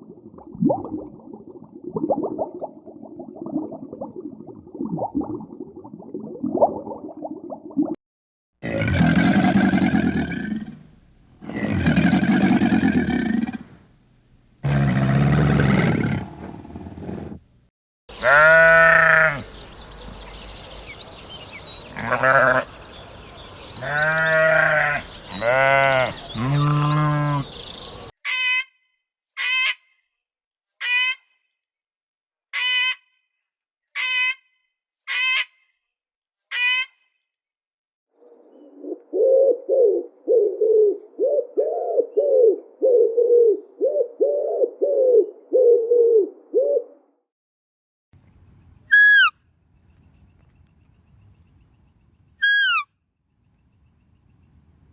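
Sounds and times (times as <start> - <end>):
livestock bleating: 18.2 - 19.5, 22.0 - 22.8, 23.8 - 27.5
short high animal calls: 48.9 - 49.3, 52.4 - 52.9.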